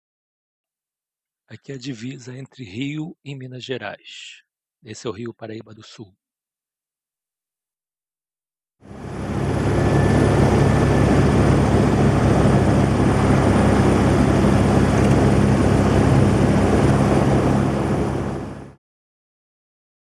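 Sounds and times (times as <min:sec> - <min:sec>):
helicopter rotor and engine: 0:08.8 - 0:18.8.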